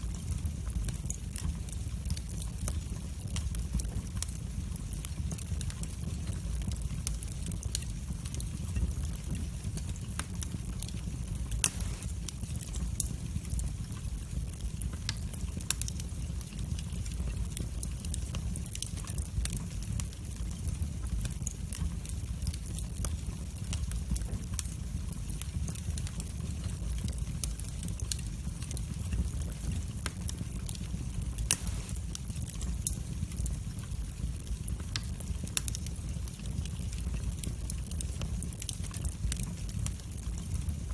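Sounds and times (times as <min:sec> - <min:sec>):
loud fire pops: 0:00.0 - 0:20.1, 0:22.7 - 0:40.8
fire rumbling and crackling: 0:00.0 - 0:40.9.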